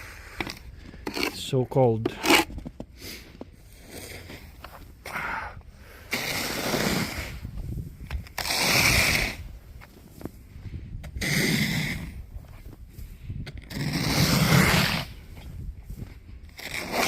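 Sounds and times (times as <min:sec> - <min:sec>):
snow scraped off car: 0:06.1 - 0:10.2, 0:11.1 - 0:12.8, 0:13.6 - 0:17.0.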